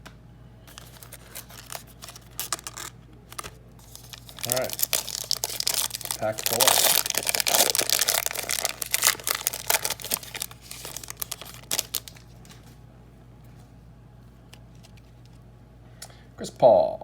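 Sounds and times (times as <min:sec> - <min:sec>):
wrapper tearing and crinkling: 0:00.7 - 0:12.8.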